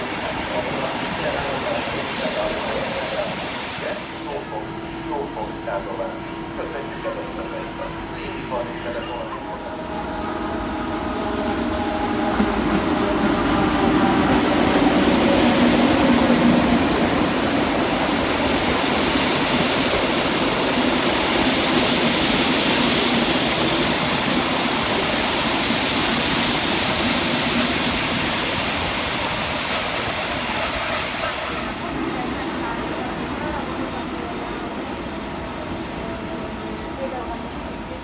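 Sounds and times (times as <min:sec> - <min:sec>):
high wheel squeal: 0:00.0 - 0:04.4
train passing on track: 0:00.0 - 0:38.0.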